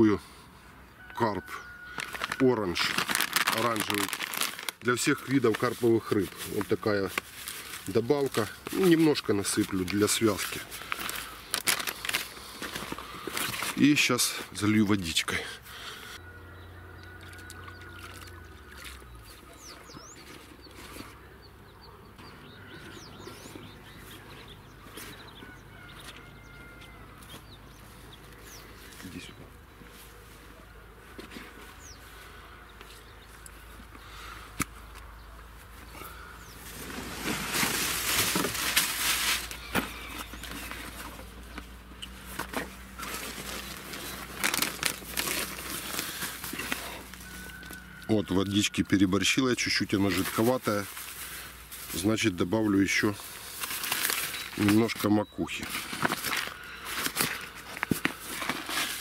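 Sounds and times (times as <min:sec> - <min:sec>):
canvas bag rustling: 0:01.9 - 0:14.0, 0:36.6 - 0:41.6, 0:42.2 - 0:47.8, 0:53.2 - 0:55.0, 0:55.6 - 0:59.0
hands rustling damp bait: 0:01.9 - 0:14.5, 0:17.1 - 0:21.2, 0:32.8 - 0:47.9, 0:53.0 - 0:55.0, 0:55.6 - 0:59.0
small birds chirping: 0:03.3 - 0:38.5, 0:39.4 - 0:58.8.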